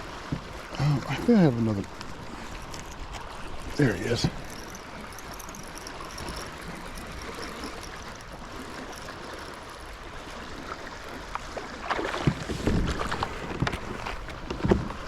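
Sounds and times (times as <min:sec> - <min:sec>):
water lapping at a kayak: 0:00.0 - 0:15.0
fish splashing and knocking: 0:11.6 - 0:15.0.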